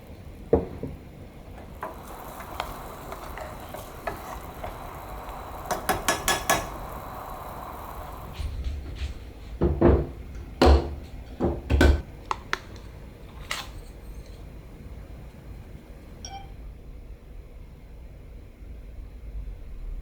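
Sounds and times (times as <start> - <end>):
ringing clink: 16.2 - 16.6.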